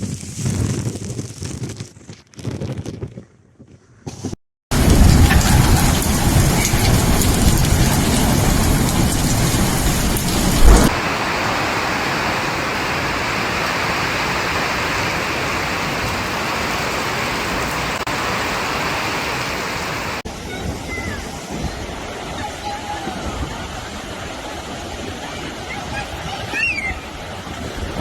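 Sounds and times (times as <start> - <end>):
low thunder rumble: 4.7 - 11.5
heavy rain pouring: 4.7 - 27.3
low thump: 10.5 - 11.0.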